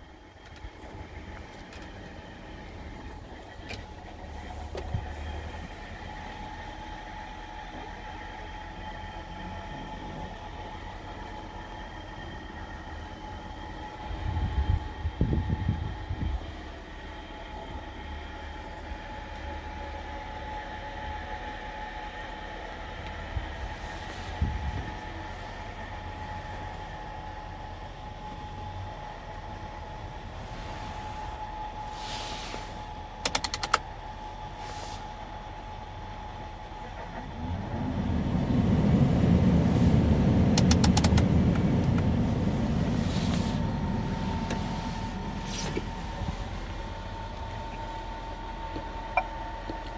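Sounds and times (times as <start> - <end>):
sharp clicks: 33.2 - 33.8, 40.6 - 41.3
diesel truck engine running: 36.2 - 49.8.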